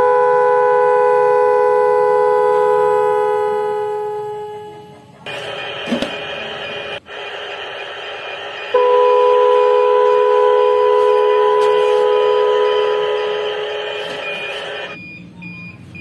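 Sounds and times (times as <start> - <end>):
loud horn-like tone: 0.0 - 5.0, 8.7 - 14.7.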